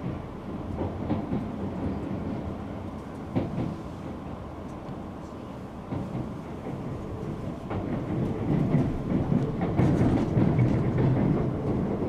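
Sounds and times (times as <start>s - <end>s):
train rumbling from inside: 0.0s - 12.0s.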